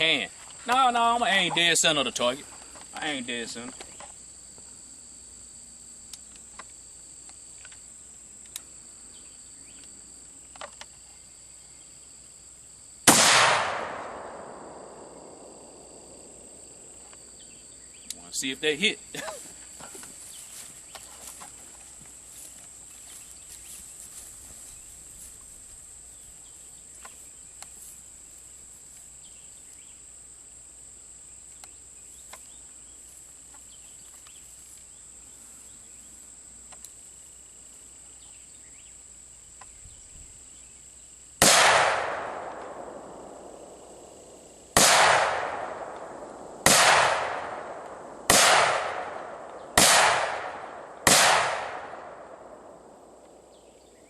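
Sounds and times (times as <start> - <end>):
high insect buzz: 0.0 - 13.2, 14.1 - 41.4
rifle shots echoing: 13.1 - 16.6, 41.4 - 44.1, 44.7 - 53.5.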